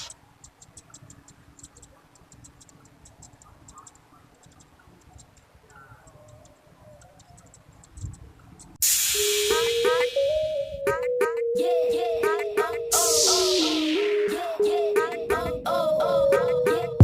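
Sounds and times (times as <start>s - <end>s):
high-pitched ticks: 0.0s - 10.3s.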